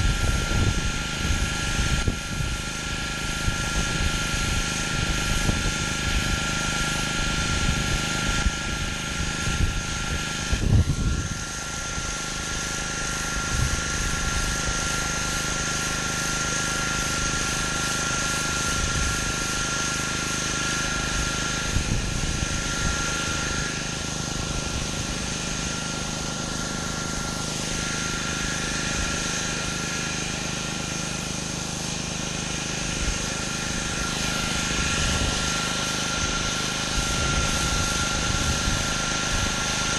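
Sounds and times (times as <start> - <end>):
pressure washer engine droning: 0.0 - 39.9
water spray hissing on concrete: 0.0 - 39.9.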